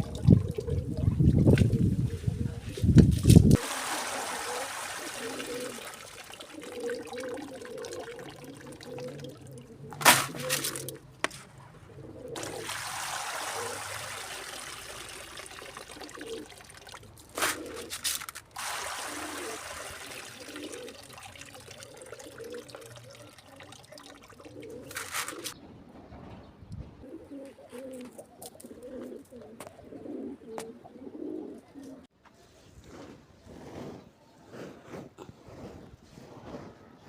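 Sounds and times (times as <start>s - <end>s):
water pouring and splashing: 0.0s - 11.0s, 12.4s - 25.6s.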